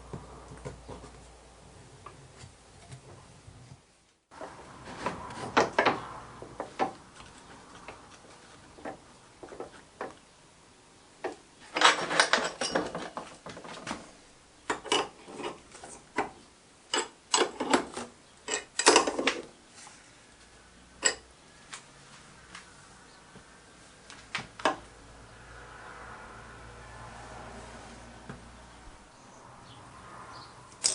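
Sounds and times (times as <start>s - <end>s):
metal tools clicking and rattling: 11.7s - 13.3s, 16.9s - 19.4s, 21.0s - 21.2s.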